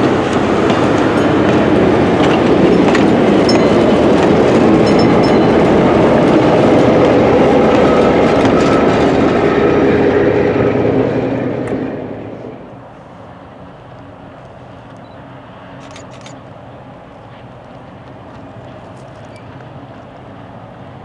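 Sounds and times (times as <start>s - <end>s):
train wheels rolling on rails: 0.0s - 21.0s
clicks at rail joints: 0.3s - 5.3s.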